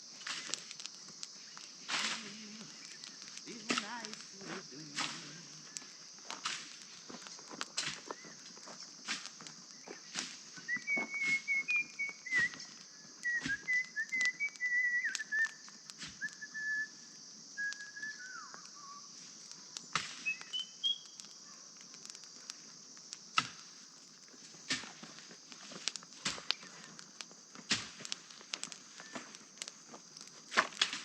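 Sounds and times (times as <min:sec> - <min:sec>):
person whistling a tune: 0:10.6 - 0:15.6, 0:16.2 - 0:17.0, 0:17.6 - 0:19.0, 0:20.2 - 0:21.0.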